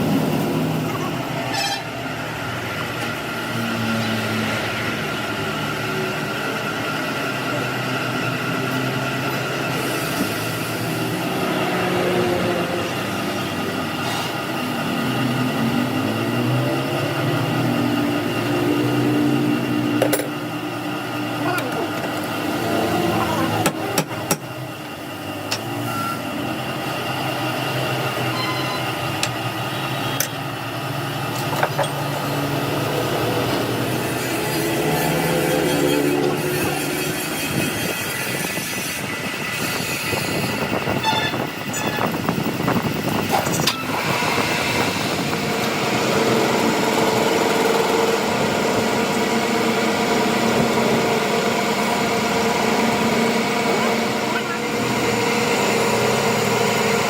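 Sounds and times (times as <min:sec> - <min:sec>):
steady mechanical hum: 0:00.0 - 0:57.0
machine humming: 0:43.9 - 0:57.0.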